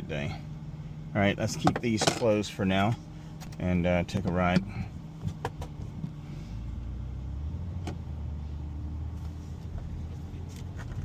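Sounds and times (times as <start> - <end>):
car engine low hum: 0.0 - 11.0.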